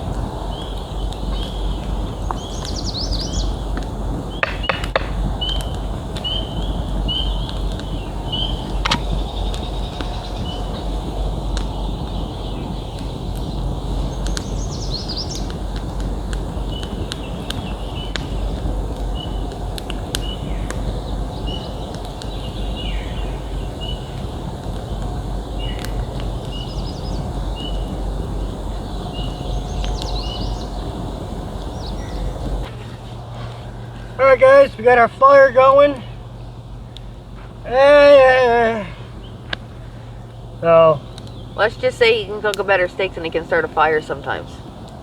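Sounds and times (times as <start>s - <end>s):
low rumbling noise: 0.0s - 45.0s
sharp crackles: 0.0s - 45.0s
bird chirping and trilling: 0.5s - 3.7s, 11.7s - 15.6s, 26.5s - 31.0s.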